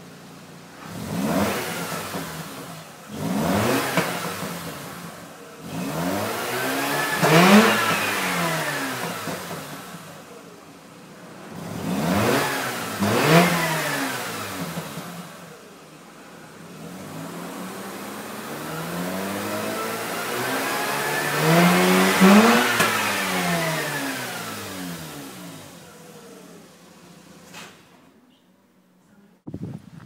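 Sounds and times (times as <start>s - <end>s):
rotary engine revving: 0.8s - 10.3s, 11.4s - 15.6s, 16.7s - 26.8s.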